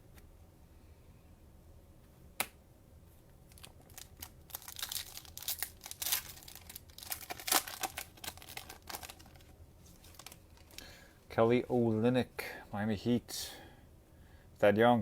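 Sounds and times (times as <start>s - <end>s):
cellophane wrapper crinkling: 3.5s - 11.0s.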